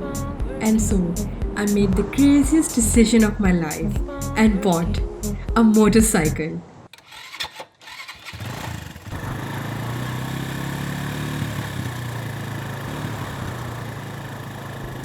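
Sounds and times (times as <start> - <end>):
motorcycle engine running: 8.3 - 15.0.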